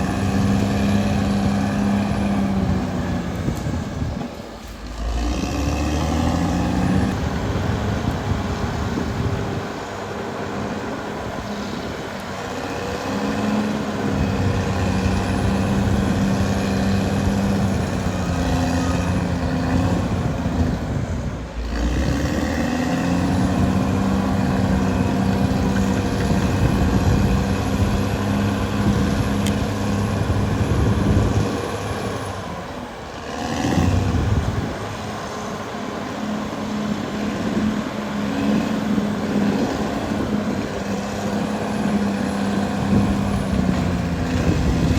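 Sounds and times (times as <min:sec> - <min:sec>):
bulldozer diesel engine working: 0:00.0 - 0:44.9.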